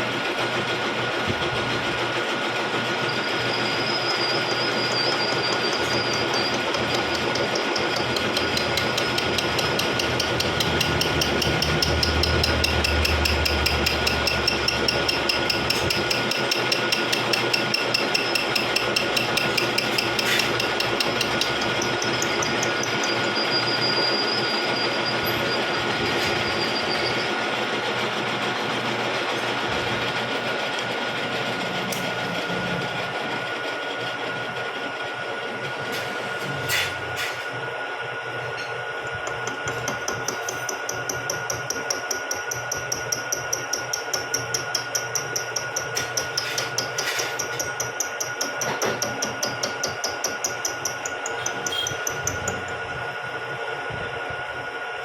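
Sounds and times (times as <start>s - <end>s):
milling machine whining: 0.0s - 55.0s
cutter ticking: 4.1s - 23.3s, 39.0s - 53.0s.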